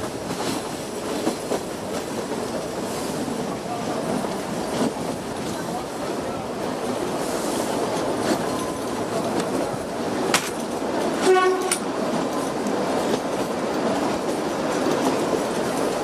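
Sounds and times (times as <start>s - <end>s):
train wheels rumbling on rails: 0.0s - 16.0s
locomotive horn toot: 11.2s - 11.8s.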